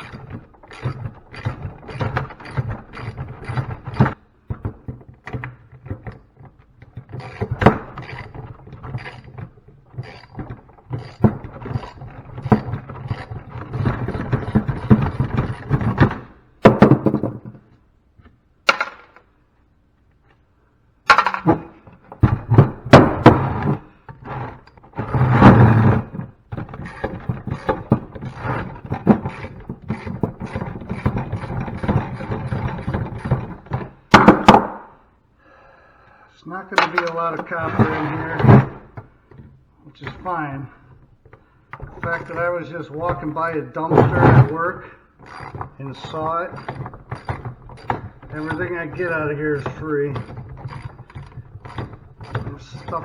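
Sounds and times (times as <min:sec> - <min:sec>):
hand tools knocking on metal: 0:41.3 - 0:53.0.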